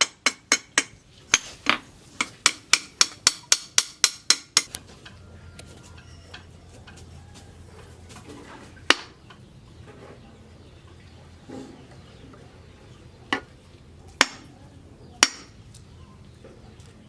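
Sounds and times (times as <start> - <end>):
hammer striking metal: 0.0 - 4.8, 15.2 - 15.5.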